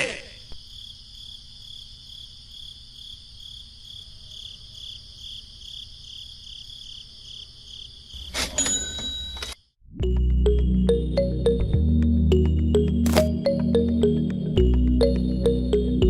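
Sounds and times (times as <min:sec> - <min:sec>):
crickets chirping: 0:00.4 - 0:08.7.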